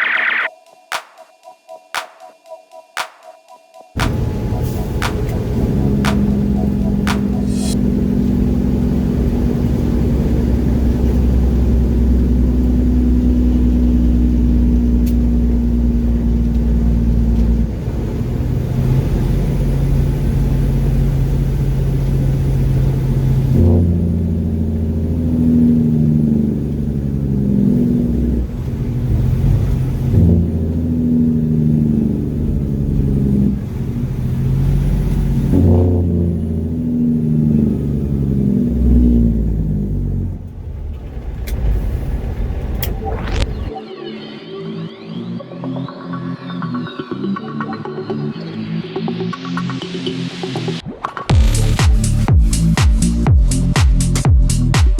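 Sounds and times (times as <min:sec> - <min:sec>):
truck diesel engine running: 0:04.0 - 0:17.3.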